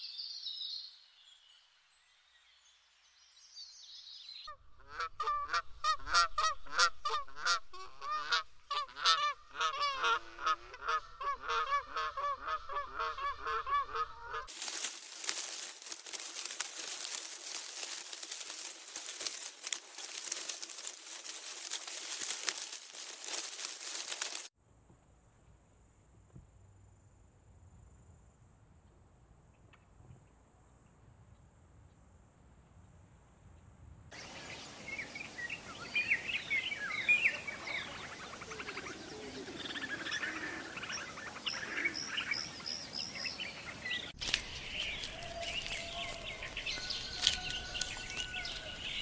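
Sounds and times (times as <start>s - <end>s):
hornbills honking: 4.8s - 14.5s, 37.4s - 42.6s
dense steady hiss: 34.1s - 40.7s.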